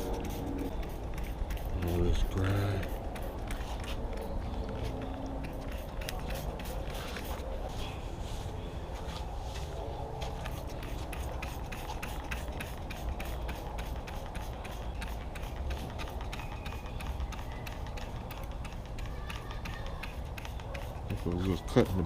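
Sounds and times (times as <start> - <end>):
scrubbing strokes on deck: 4.8 - 22.0.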